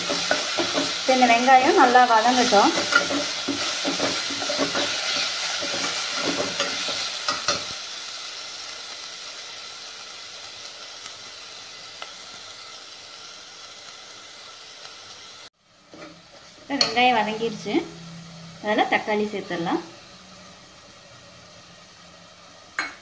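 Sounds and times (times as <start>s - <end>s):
food frying in oil: 0.0s - 23.0s
metal spoon scraping a pot: 2.4s - 7.7s.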